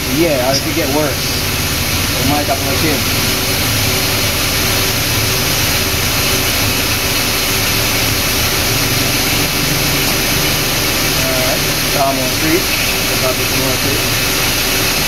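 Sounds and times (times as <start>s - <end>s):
car engine idling: 0.0s - 15.0s
engine bay whir and hiss: 0.0s - 15.0s.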